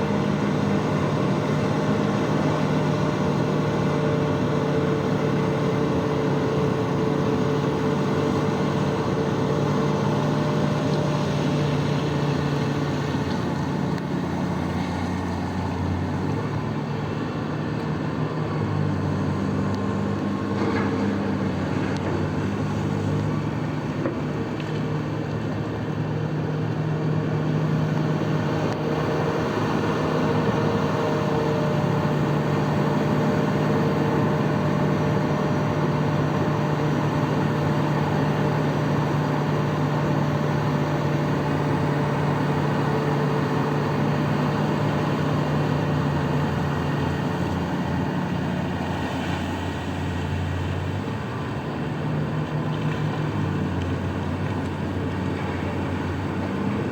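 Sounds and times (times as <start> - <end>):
large diesel engine under load: 0.0 - 56.9.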